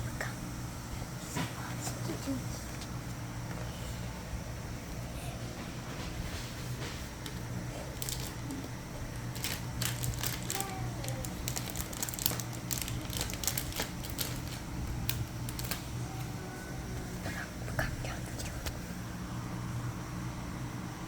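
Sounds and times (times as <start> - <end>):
steady low hum: 0.0 - 21.0
plastic packaging crinkling: 7.2 - 16.0.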